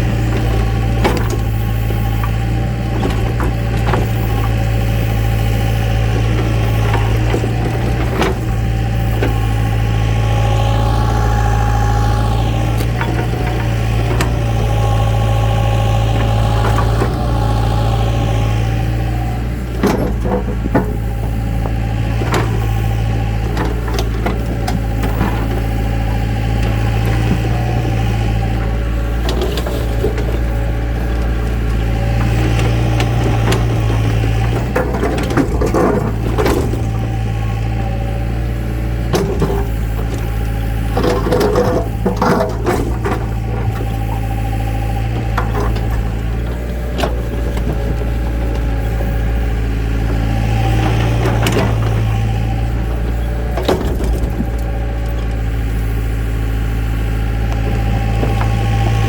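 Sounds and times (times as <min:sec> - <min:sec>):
heavy machine engine running: 0:00.0 - 0:59.0
clattering knocks: 0:12.2 - 0:59.0.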